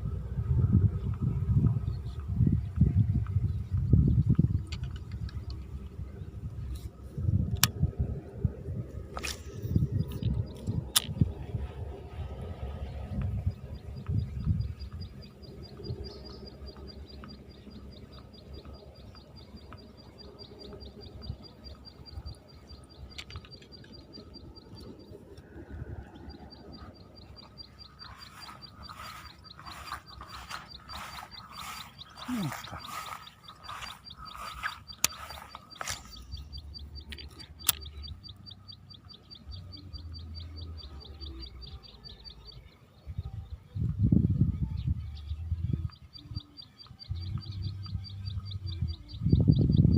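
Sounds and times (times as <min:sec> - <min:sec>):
low rumbling background noise: 0:00.0 - 0:49.9
sharp clicks: 0:34.5 - 0:38.4.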